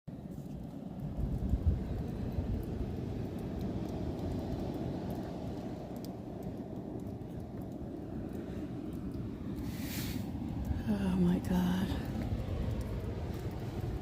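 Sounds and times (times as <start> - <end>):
blizzard wind rumbling: 0.1 - 14.0
faint ticks: 0.3 - 10.8.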